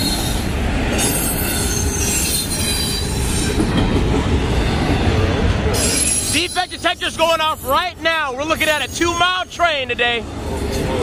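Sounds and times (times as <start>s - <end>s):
steel wheels rumbling on rail: 0.0s - 11.0s
high-pitched wheel squeal: 1.0s - 3.6s, 5.8s - 6.8s.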